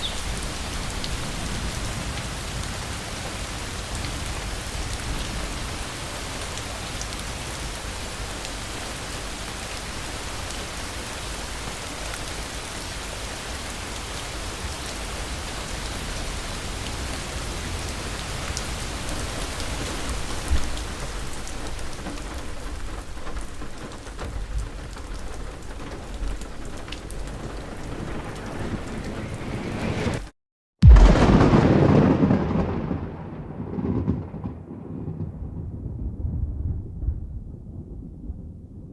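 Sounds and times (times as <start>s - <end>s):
heavy rain pouring: 0.0s - 35.1s
low rolling thunder: 27.1s - 30.2s, 30.8s - 38.9s
sharp thunder jolt: 30.8s - 38.7s.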